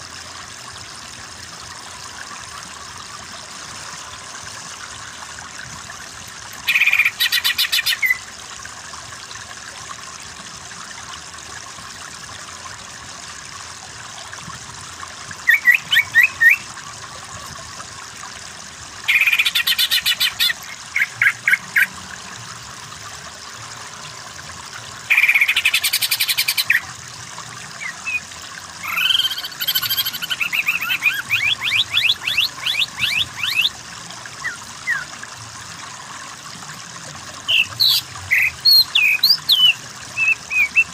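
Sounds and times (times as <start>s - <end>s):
running water: 0.0s - 40.9s
bird singing trilled phrases: 6.6s - 8.2s, 15.4s - 16.7s, 19.1s - 21.9s, 25.1s - 26.9s, 27.8s - 33.8s, 34.4s - 35.1s, 37.5s - 40.9s.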